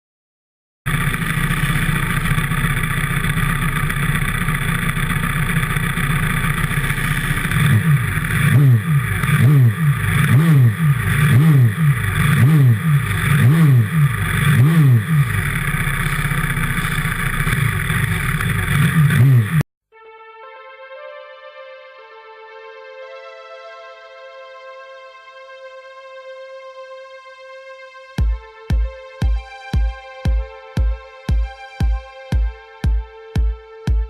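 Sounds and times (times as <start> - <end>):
pit bike engine revving: 0.9 - 19.6.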